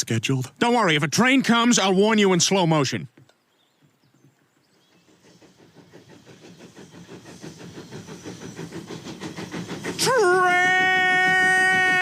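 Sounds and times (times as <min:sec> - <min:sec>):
train wheels clattering on rails: 0:03.8 - 0:12.0.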